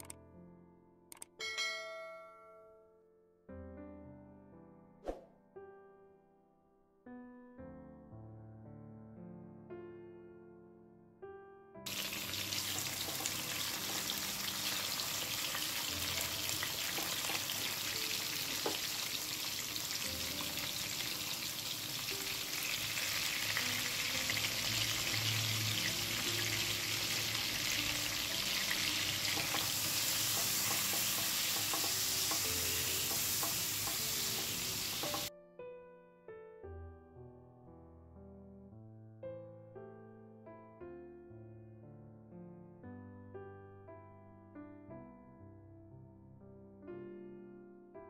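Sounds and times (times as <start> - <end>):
prawns sizzling in oil: 11.9 - 35.3.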